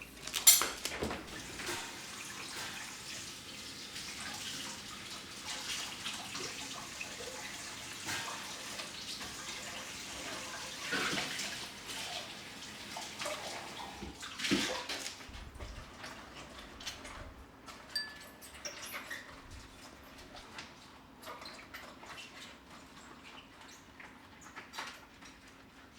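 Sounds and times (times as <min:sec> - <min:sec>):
water running from a tap: 0:00.1 - 0:17.2.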